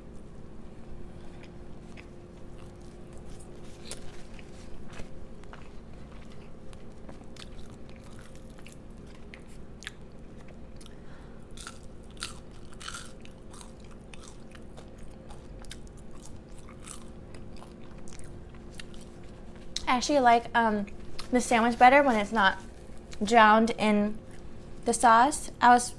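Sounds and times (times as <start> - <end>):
low electrical hum: 0.0 - 25.9
chewing with crisp crunches: 1.0 - 23.3, 24.2 - 24.9.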